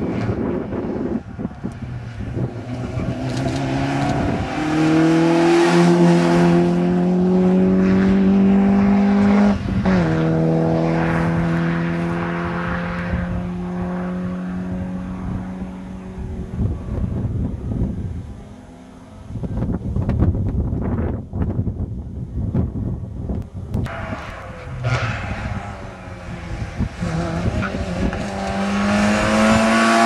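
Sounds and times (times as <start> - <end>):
rally car engine accelerating hard: 2.3 - 17.2, 23.9 - 30.0.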